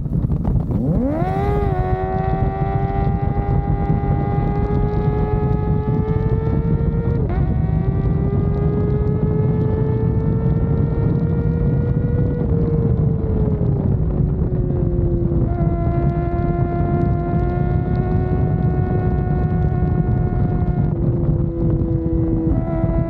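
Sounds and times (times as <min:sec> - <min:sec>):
gear change: 0:00.0 - 0:23.0
motorcycle engine at high revs: 0:00.0 - 0:23.0
wind rushing over microphone: 0:00.0 - 0:23.0.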